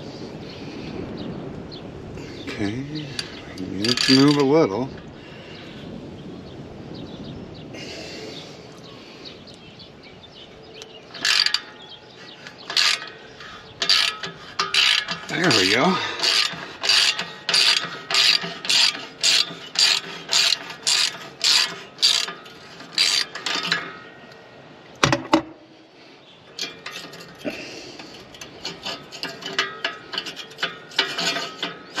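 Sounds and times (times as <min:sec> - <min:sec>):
ratchet wrench clicking: 0:03.2 - 0:04.5, 0:11.1 - 0:11.7, 0:12.4 - 0:23.8, 0:28.3 - 0:32.0.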